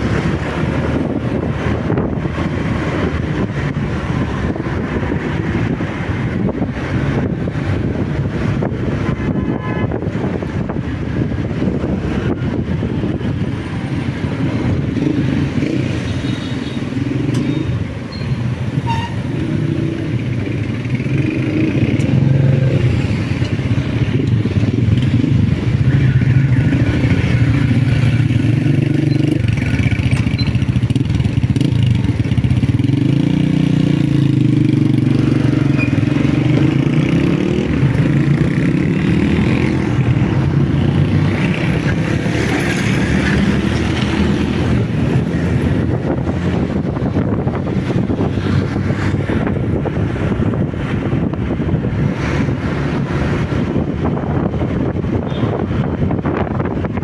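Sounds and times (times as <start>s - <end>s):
motorcycle engine accelerating: 19.4s - 57.0s.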